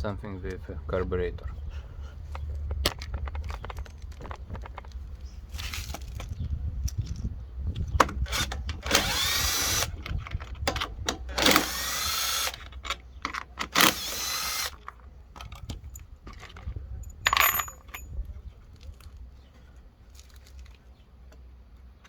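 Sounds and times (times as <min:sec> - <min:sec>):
tools and metal parts clinking: 0:02.3 - 0:19.2
cordless power driver whining: 0:07.7 - 0:14.8.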